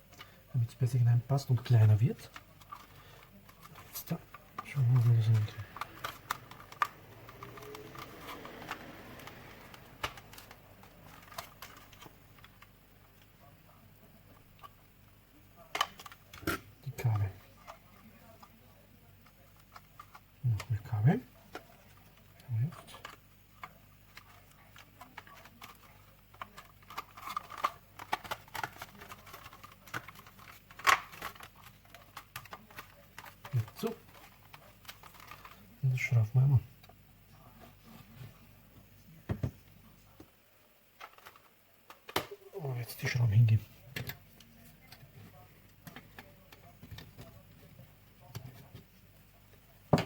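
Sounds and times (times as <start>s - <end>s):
plastic parts clicking together: 2.2s - 13.3s, 15.7s - 18.5s, 21.5s - 35.6s, 41.0s - 42.3s.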